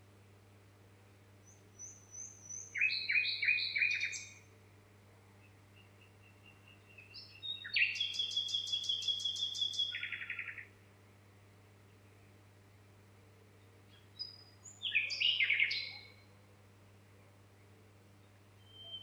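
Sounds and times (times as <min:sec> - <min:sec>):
faint low hum: 0:00.0 - 0:19.0
songbird singing: 0:01.4 - 0:04.5, 0:05.2 - 0:10.8, 0:13.4 - 0:16.4, 0:17.1 - 0:19.0.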